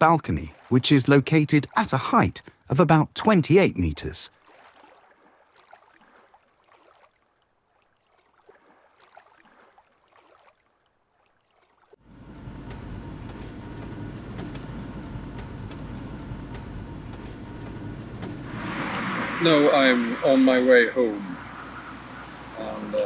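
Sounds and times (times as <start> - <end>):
vehicle driving rumble: 12.0 - 23.0.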